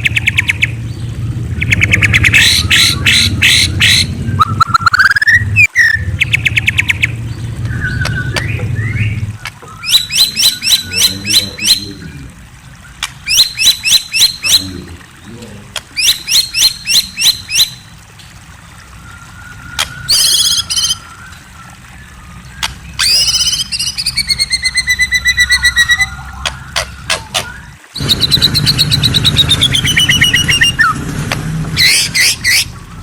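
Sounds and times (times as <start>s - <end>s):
songbird singing whistled notes: 1.6s - 11.9s, 13.2s - 14.6s, 16.0s - 17.8s, 18.9s - 31.0s.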